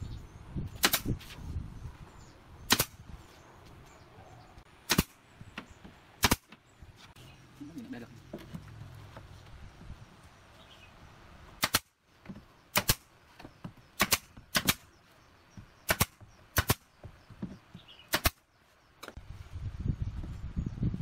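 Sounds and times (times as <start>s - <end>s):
pneumatic nail gun shots: 0.8s - 1.2s, 2.7s - 3.0s, 4.9s - 5.2s, 6.2s - 6.5s, 11.6s - 11.9s, 12.7s - 13.1s, 14.0s - 14.9s, 15.8s - 16.9s, 18.1s - 18.4s.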